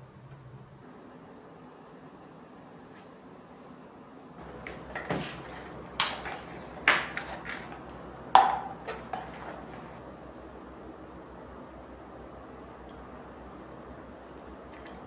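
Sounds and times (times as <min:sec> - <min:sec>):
low steady hum: 0:03.5 - 0:15.0
dishes clinking: 0:05.0 - 0:10.0.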